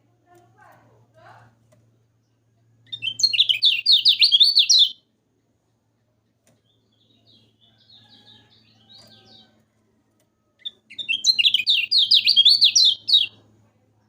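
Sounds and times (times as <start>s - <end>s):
faint electrical hum: 0.0s - 14.0s
bird singing sharp chirps: 2.9s - 5.0s, 10.6s - 13.4s.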